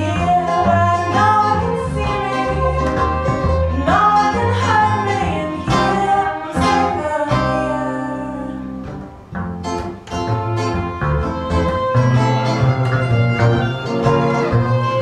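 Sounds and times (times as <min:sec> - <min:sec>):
person singing: 0:00.0 - 0:08.9
strummed acoustic guitar: 0:00.0 - 0:15.0.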